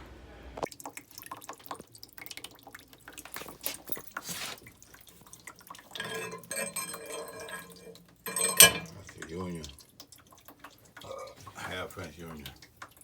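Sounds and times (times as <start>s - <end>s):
water dripping and trickling: 0.6s - 13.0s
metallic ringing: 5.9s - 9.2s.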